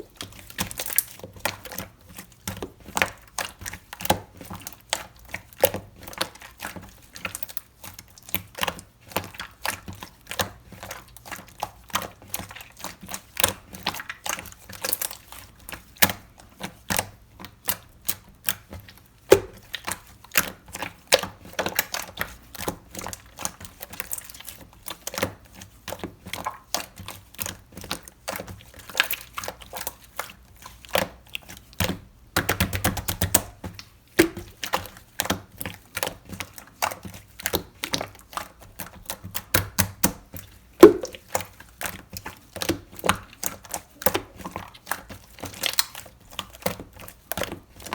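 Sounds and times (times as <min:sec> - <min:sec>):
slime squeezed with clicky pops: 0:19.3 - 0:19.6, 0:40.8 - 0:41.3.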